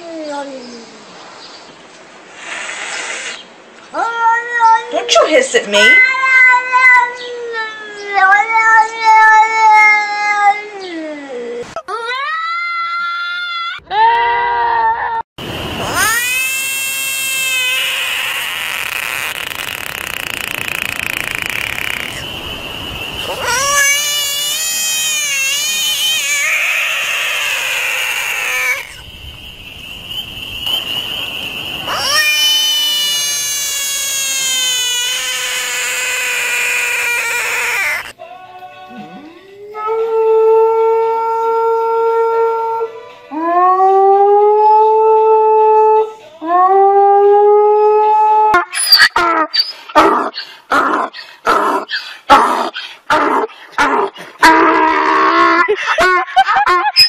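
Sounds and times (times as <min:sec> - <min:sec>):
frog screaming: 0:15.8 - 0:29.1, 0:29.8 - 0:38.2, 0:48.4 - 0:56.0
dog howling: 0:23.2 - 0:29.0, 0:31.8 - 0:34.1.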